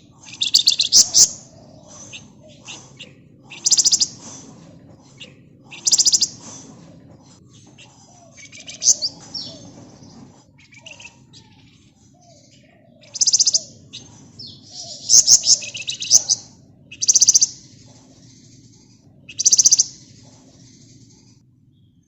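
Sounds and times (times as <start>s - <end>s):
bird singing buzzy trills: 0.0s - 22.0s
bird chirps and whistled notes: 0.2s - 4.5s, 5.2s - 6.7s, 7.7s - 9.7s, 13.0s - 18.6s, 19.3s - 22.0s.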